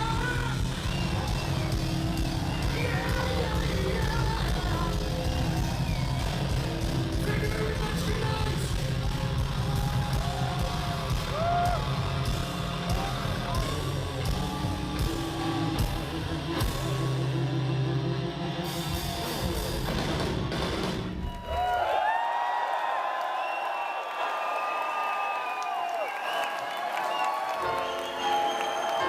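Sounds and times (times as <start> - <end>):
drum kit: 0.0 - 17.7, 18.6 - 21.6
low bass line: 0.0 - 20.0
electric guitars: 0.0 - 21.3
person singing: 2.5 - 5.7.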